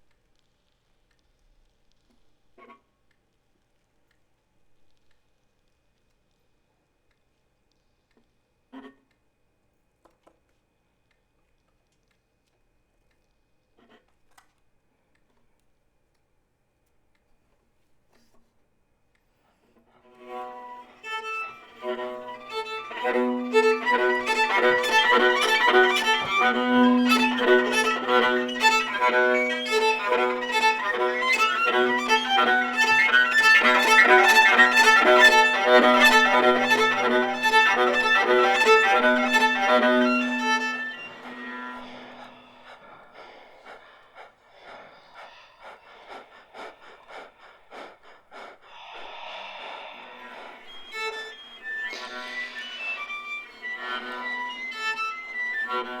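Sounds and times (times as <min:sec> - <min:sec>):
viola and saxophone duo: 0:20.2 - 0:42.6, 0:50.2 - 0:56.0.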